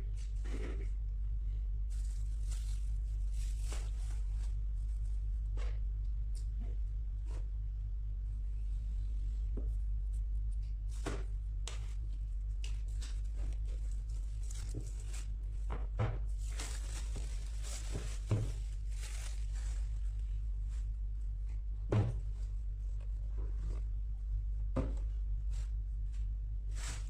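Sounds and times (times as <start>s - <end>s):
steady low hum: 0.0s - 27.0s
wrapping tearing and rustling: 1.9s - 4.6s, 12.4s - 15.4s, 16.3s - 20.2s.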